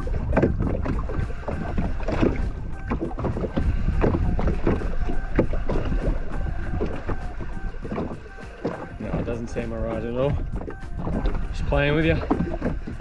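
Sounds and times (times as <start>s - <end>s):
water sloshing against a hull: 0.0s - 13.0s
wind rumble on microphone: 0.0s - 13.0s.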